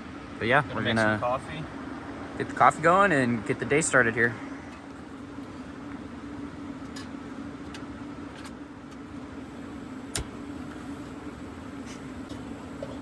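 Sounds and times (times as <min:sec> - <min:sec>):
diesel air heater humming: 0:00.0 - 0:13.0.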